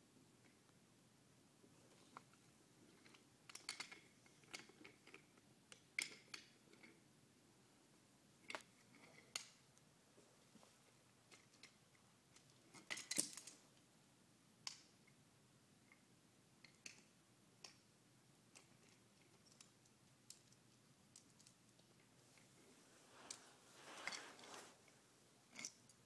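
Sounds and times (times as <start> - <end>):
toy train pieces clicking: 3.0 - 6.9, 11.3 - 13.6.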